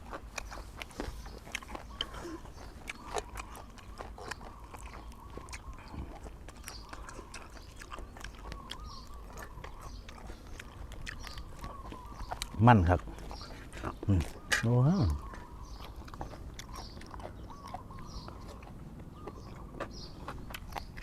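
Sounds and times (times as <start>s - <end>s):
person chewing: 0.0s - 21.0s
wet mouth clicks and smacks: 2.8s - 12.6s.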